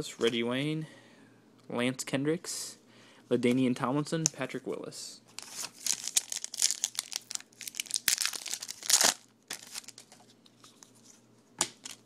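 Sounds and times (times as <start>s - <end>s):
wrapper crinkling and tearing: 5.4s - 10.2s.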